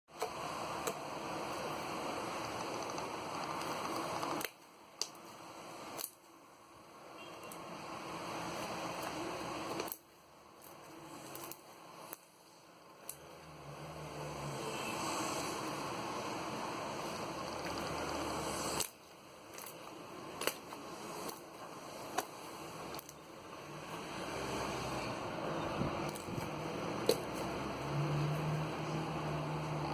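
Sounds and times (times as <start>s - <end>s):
slime hissing: 13.9s - 19.0s.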